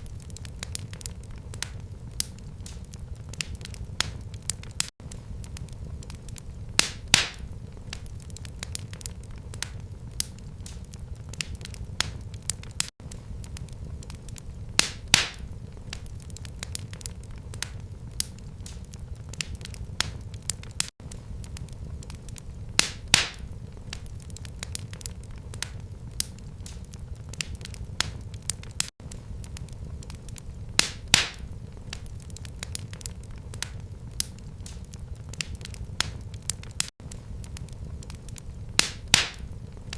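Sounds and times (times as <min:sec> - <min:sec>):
sharp pop of fire: 0:00.0 - 0:08.9, 0:14.8 - 0:16.9, 0:22.8 - 0:30.1, 0:30.7 - 0:39.9
fire crackling: 0:00.0 - 0:39.9
low rumble of flames: 0:00.0 - 0:39.9.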